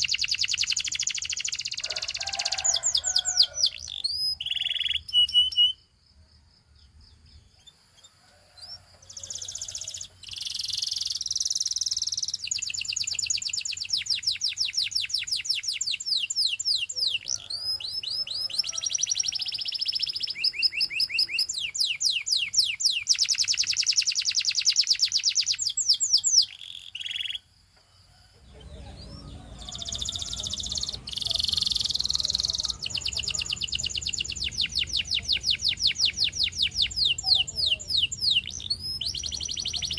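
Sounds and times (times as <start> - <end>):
canary singing fast trills: 0.0 - 6.2, 6.8 - 27.6, 28.4 - 39.9
low background noise: 0.0 - 39.9.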